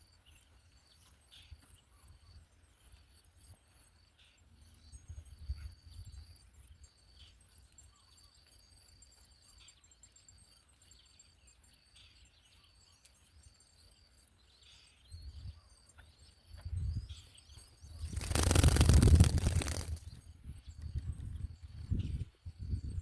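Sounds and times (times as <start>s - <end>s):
high insect trill: 17.8s - 20.2s.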